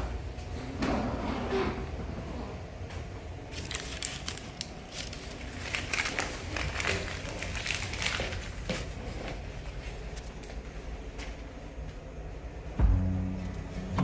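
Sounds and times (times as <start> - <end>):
low steady hum: 0.0 - 14.0
rustling and crinkling: 3.0 - 11.5.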